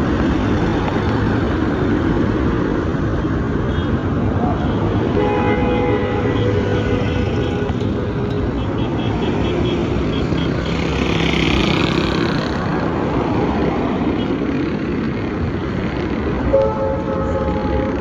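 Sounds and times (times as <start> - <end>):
road traffic: 0.0 - 18.0
vehicle horn blast: 5.2 - 10.5.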